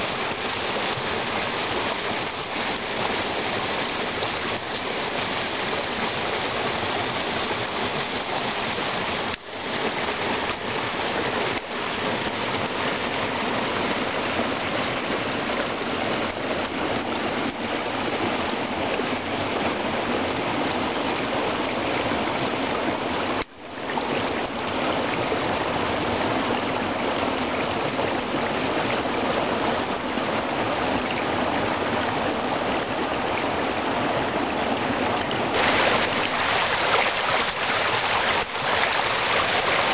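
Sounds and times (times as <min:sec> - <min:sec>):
water running and splashing: 0:35.2 - 0:39.9.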